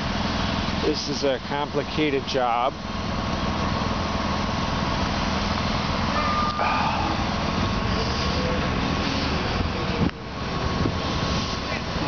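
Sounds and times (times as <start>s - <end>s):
heavy engine running: 0.0s - 12.0s
brief higher tone: 6.1s - 7.3s.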